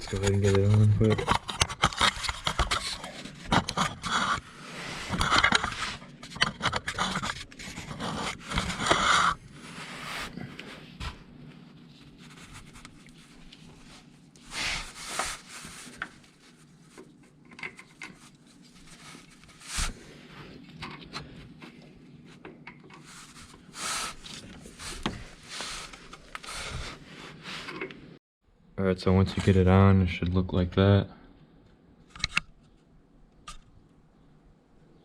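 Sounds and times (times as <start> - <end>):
wrench scraping and rubbing: 0.0 - 10.4.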